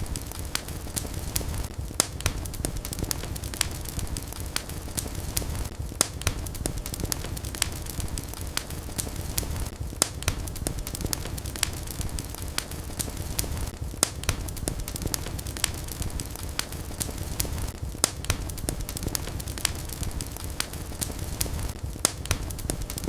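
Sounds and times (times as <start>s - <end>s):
fire crackles and pops: 0.0s - 23.0s
low rumble of flames: 0.0s - 23.0s.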